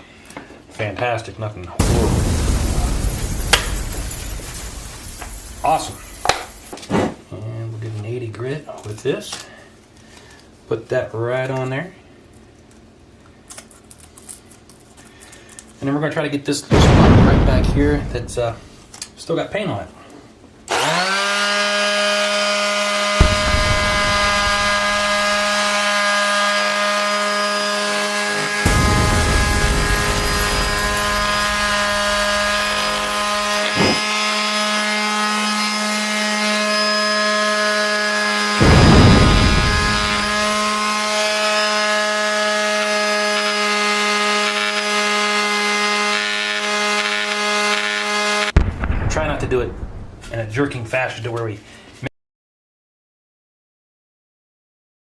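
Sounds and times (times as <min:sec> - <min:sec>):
detail sander humming: 0:22.8 - 0:37.6, 0:38.4 - 0:48.4
electric sander hum: 0:39.3 - 0:48.4.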